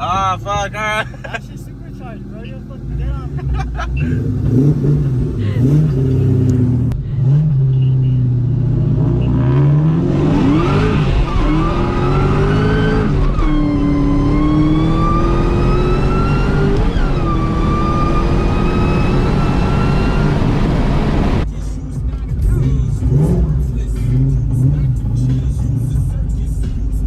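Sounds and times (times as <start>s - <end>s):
supercharger whine: 0.0s - 21.5s
car engine accelerating: 0.0s - 27.0s.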